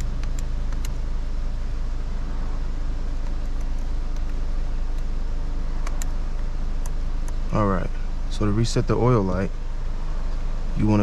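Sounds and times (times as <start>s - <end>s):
car engine idling: 0.0s - 11.0s
faint light clicks: 3.2s - 5.1s, 5.8s - 7.4s.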